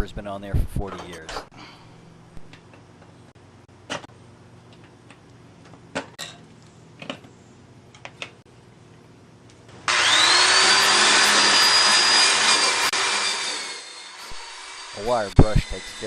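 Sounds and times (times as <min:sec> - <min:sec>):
wire brush power tool scouring metal: 0:09.9 - 0:16.0.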